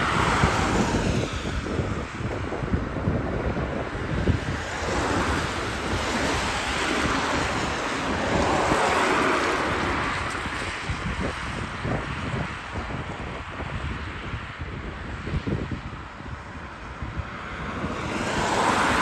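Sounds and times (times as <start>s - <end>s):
jet engines roaring: 0.0s - 13.9s, 16.2s - 19.0s
wind buffeting microphone: 0.0s - 19.0s.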